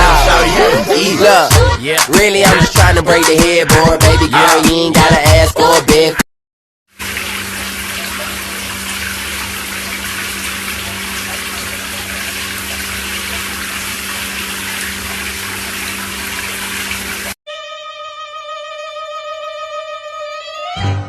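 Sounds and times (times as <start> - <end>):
running water rushing: 7.0 - 17.4.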